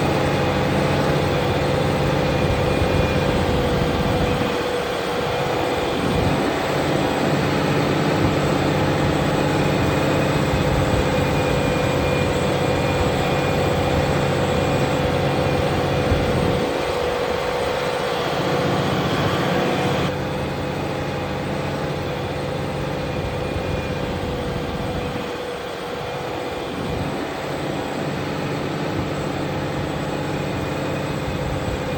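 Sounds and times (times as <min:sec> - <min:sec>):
tractor diesel engine running: 0:00.0 - 0:31.9.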